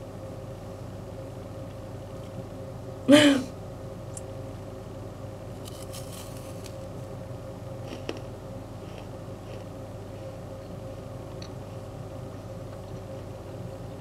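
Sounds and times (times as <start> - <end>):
steady background hum: 0.0 - 14.0
crunchy chewing of biscuit: 5.5 - 14.0.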